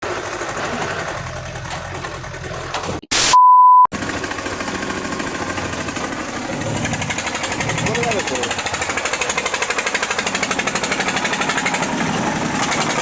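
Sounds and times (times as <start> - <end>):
diesel engine running: 0.0 - 3.0, 3.9 - 13.0
high beep: 3.2 - 3.9.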